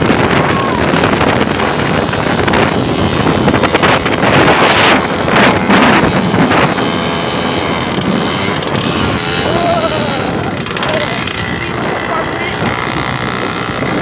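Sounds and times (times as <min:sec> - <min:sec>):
motorcycle noise: 0:00.0 - 0:14.0
wind buffeting microphone: 0:00.0 - 0:14.0.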